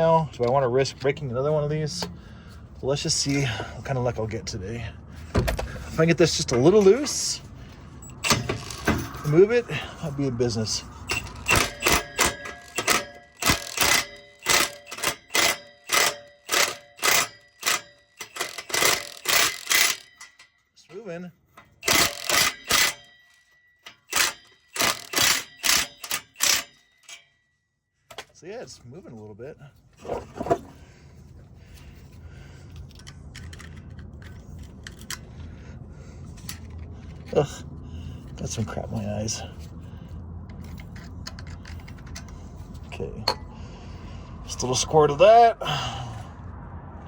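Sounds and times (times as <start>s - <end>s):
low steady hum: 0.0s - 47.0s
metal tool clicks and scrapes: 11.0s - 20.5s, 21.6s - 23.2s, 23.8s - 27.3s, 32.7s - 35.3s, 40.5s - 43.5s.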